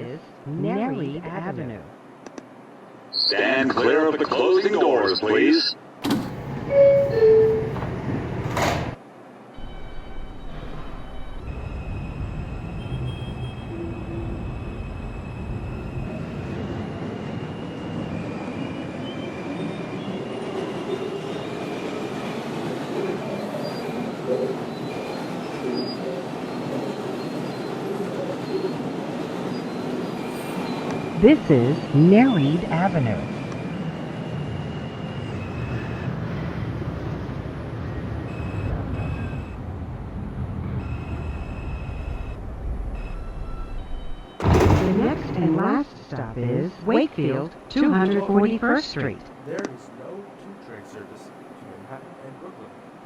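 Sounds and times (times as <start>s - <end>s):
subway wheels rumbling on rail: 5.8s - 53.0s.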